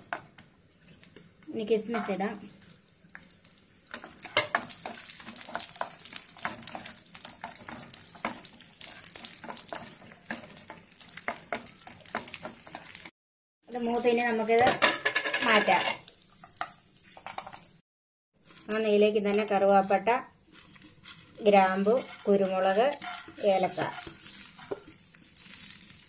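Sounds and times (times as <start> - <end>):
nuts sizzling in a pan: 0.0 - 13.1, 13.7 - 17.8, 18.4 - 26.0
wooden spatula scraping: 1.8 - 2.8, 3.9 - 13.1, 18.4 - 25.0.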